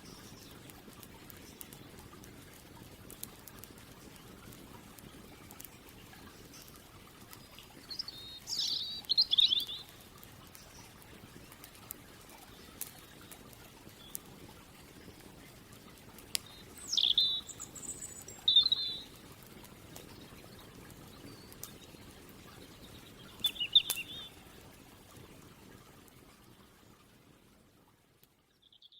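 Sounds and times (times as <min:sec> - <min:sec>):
songbird singing: 0:00.0 - 0:00.7, 0:07.3 - 0:11.0, 0:16.4 - 0:19.2, 0:20.1 - 0:24.4, 0:28.6 - 0:28.9.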